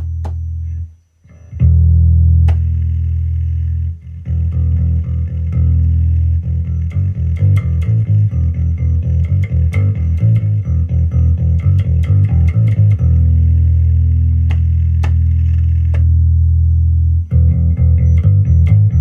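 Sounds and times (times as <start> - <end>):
electric bass plucked notes: 0.0 - 19.0.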